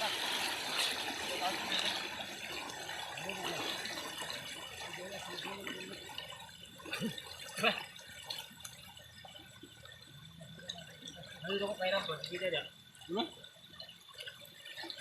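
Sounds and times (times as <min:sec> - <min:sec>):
water gurgling and trickling: 0:00.0 - 0:15.0
water plops: 0:00.0 - 0:15.0.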